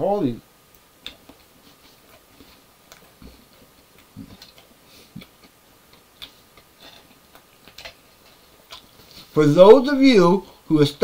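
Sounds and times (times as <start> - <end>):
quiet chewing and mouth smacks: 0.7 - 9.3.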